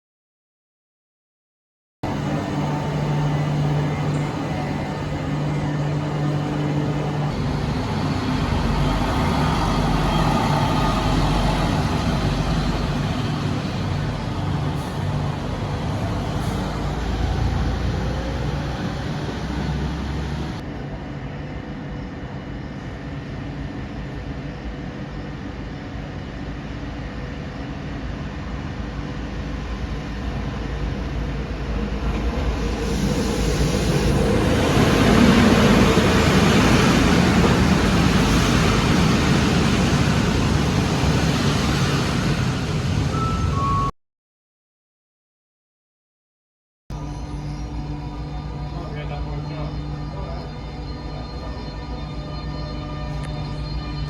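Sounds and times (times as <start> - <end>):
railcar diesel engine droning: 2.0 - 43.9, 46.9 - 54.0
broad rushing noise: 29.8 - 43.9.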